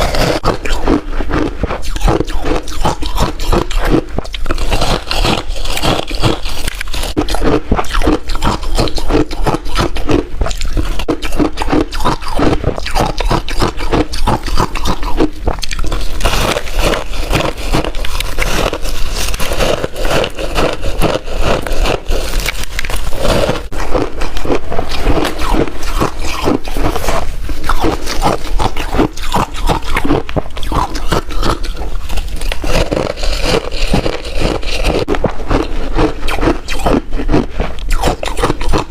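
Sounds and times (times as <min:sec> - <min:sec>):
ice crunching being chewed: 0:00.0 - 0:38.9.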